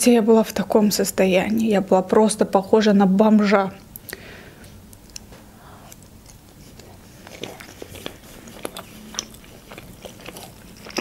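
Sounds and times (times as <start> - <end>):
chewing crispy chicken: 5.1 - 11.0.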